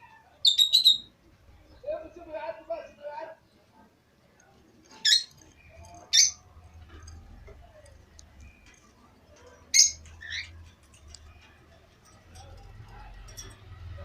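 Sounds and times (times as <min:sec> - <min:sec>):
birds chirping: 0:00.0 - 0:14.0
bird harsh calls: 0:09.7 - 0:10.6.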